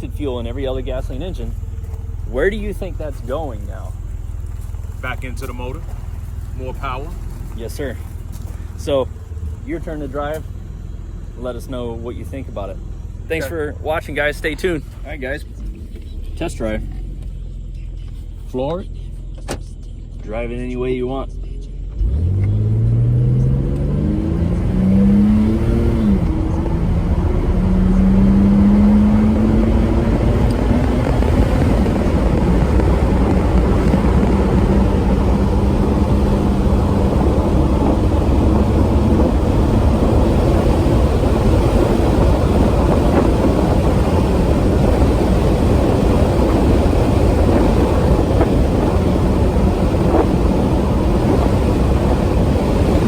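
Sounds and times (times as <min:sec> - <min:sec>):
car engine accelerating: 0:00.0 - 0:53.0
road and wind noise: 0:00.0 - 0:53.0.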